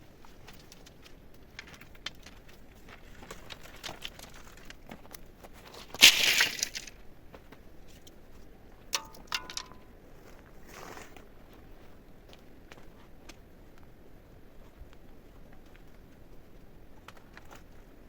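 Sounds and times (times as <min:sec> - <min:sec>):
small clicks and rustles: 0:00.0 - 0:09.9, 0:17.0 - 0:17.9
loud crunching rustle: 0:00.1 - 0:07.0.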